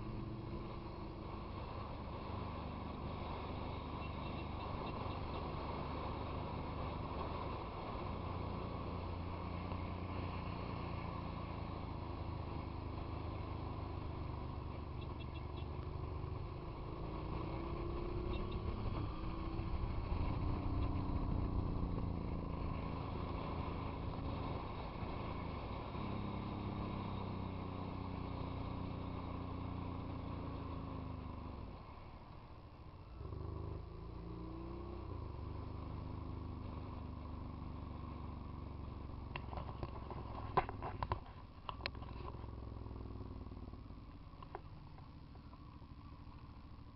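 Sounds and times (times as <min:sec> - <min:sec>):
motorcycle engine revving: 0:00.0 - 0:31.5
road and wind noise: 0:00.0 - 0:46.9.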